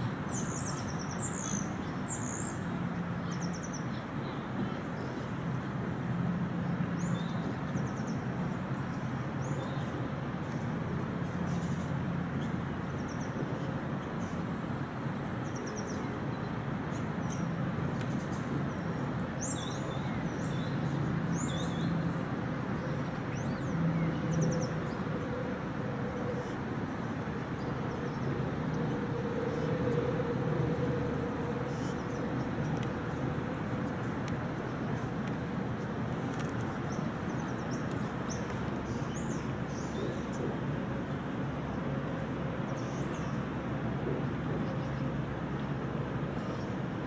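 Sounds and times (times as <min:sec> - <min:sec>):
distant traffic rumble: 0:00.0 - 0:47.0
small birds chirping: 0:00.3 - 0:05.3.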